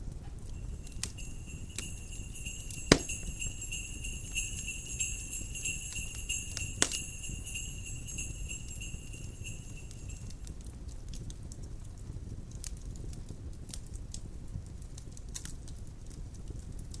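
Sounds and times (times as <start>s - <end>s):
wood fire crackling: 0.0s - 17.0s
jingle bells shaking: 0.5s - 10.5s.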